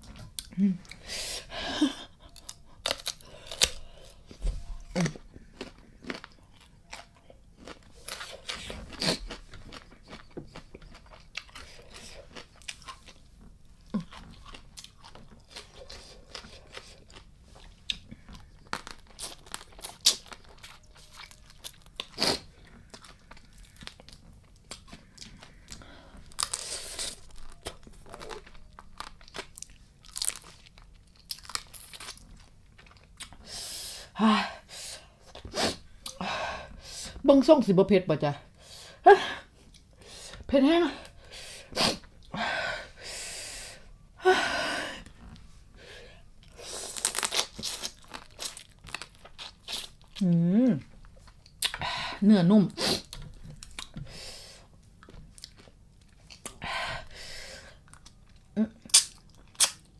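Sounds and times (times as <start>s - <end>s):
chewing with crunches: 2.1s - 33.4s, 46.4s - 51.8s, 54.8s - 56.6s, 57.8s - 59.9s.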